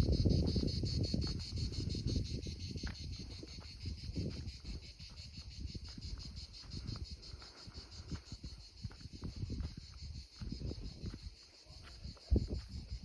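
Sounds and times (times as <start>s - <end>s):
crickets chirping: 0.0s - 13.0s
wind buffeting microphone: 0.0s - 13.0s.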